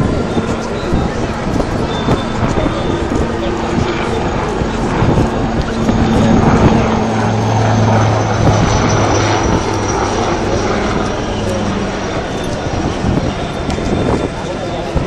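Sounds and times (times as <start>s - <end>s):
aircraft engine drone: 0.0s - 15.0s
faint high engine whine: 0.0s - 15.0s.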